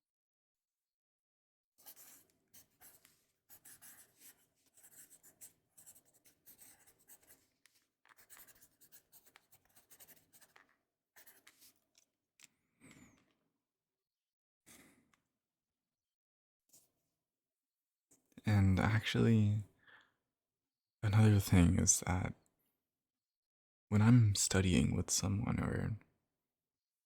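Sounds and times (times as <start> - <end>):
pen writing on paper: 1.8 - 11.8.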